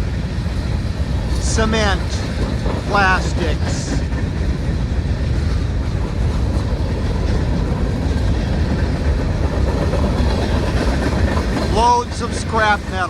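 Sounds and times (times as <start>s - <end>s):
freight train rolling past: 0.0s - 13.0s.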